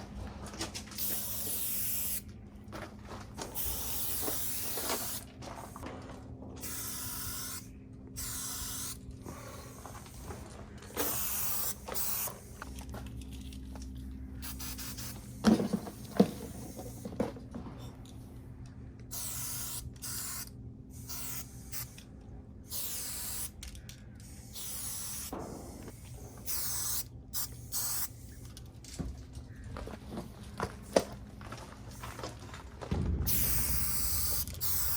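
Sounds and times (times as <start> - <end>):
spray paint can spraying: 1.0 - 2.3, 3.4 - 5.8, 6.6 - 13.2, 14.4 - 17.1, 19.1 - 28.6, 33.2 - 34.9.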